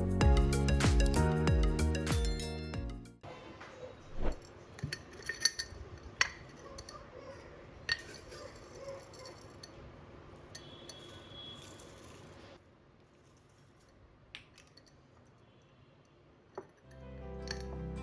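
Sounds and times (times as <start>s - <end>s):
spoon and dishes clinking: 4.4s - 9.8s, 10.5s - 12.4s, 16.6s - 17.9s.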